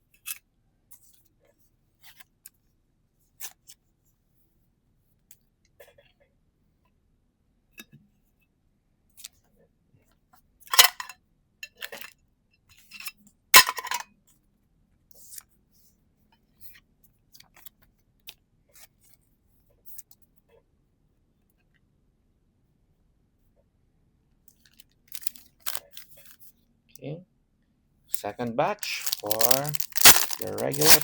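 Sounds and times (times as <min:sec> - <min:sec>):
trading cards clicking and crinkling: 0:24.6 - 0:26.4, 0:28.2 - 0:31.0.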